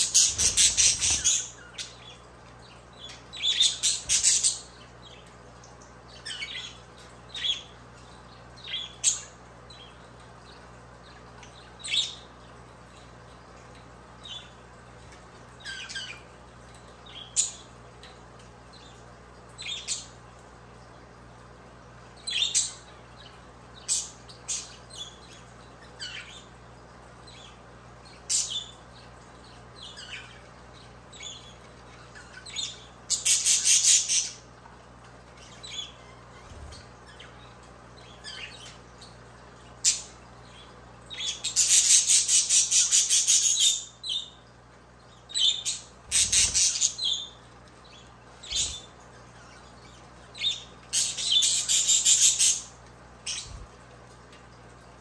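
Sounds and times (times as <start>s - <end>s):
rapid chattering bird calls: 0.0s - 2.0s, 45.3s - 47.4s, 48.4s - 49.4s
budgerigars chirping and squawking: 0.0s - 5.3s, 6.1s - 12.3s, 15.5s - 16.3s, 22.2s - 26.6s, 27.2s - 34.5s, 35.3s - 44.4s, 45.1s - 53.8s.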